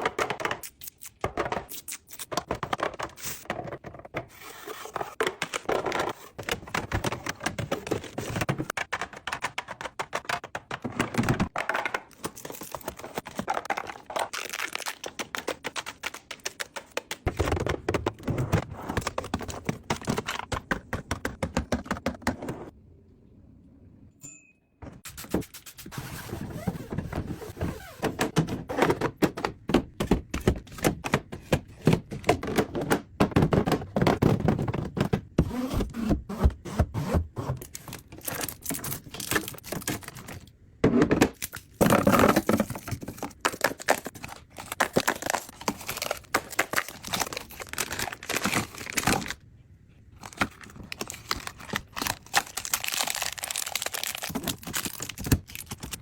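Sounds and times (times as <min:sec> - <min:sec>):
packaging crinkling and tearing: 0:13.7 - 0:15.5, 0:37.7 - 0:40.4, 0:41.4 - 0:49.4, 0:50.2 - 0:56.0
containers knocking and clacking: 0:28.2 - 0:35.4.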